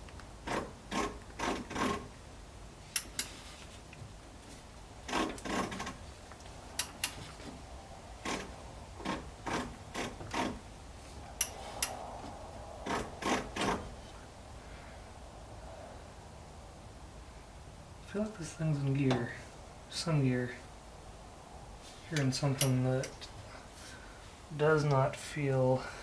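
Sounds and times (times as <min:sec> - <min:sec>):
ratchet clicking: 0:00.4 - 0:02.1, 0:02.9 - 0:03.3, 0:05.1 - 0:06.0, 0:12.8 - 0:13.8.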